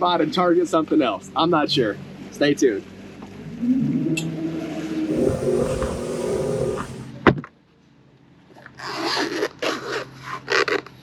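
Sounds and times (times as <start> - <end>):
steady rumble: 5.1 - 7.1.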